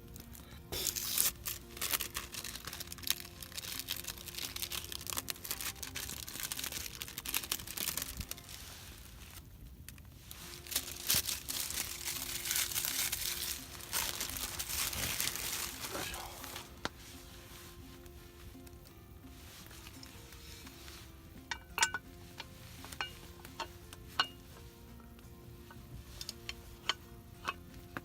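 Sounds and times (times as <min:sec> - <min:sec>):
packaging crinkling and rustling: 0:00.0 - 0:24.7.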